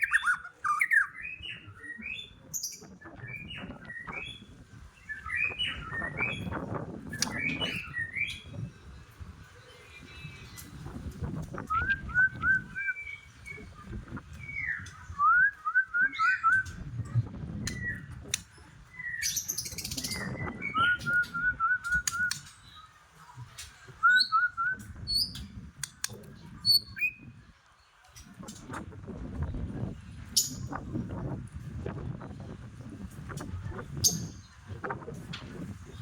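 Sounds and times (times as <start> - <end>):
bird whistling song: 0.0 - 8.5, 11.5 - 16.8, 18.9 - 22.8, 24.0 - 25.4.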